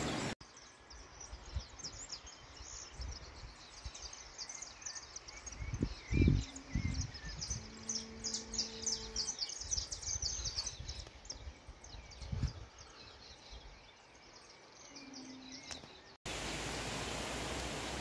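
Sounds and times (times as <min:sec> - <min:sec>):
steady rushing hiss: 0:00.0 - 0:00.4, 0:16.3 - 0:18.0
birds chirping: 0:00.0 - 0:18.0.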